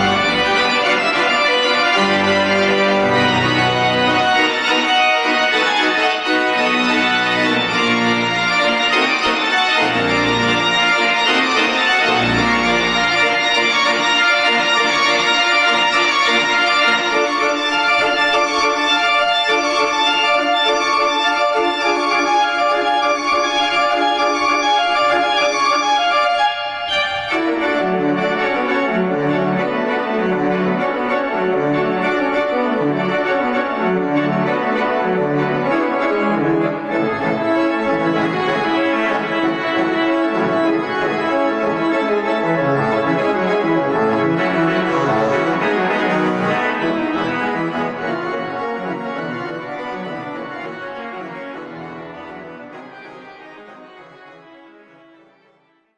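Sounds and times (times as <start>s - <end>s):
organ music: 0.0s - 55.7s.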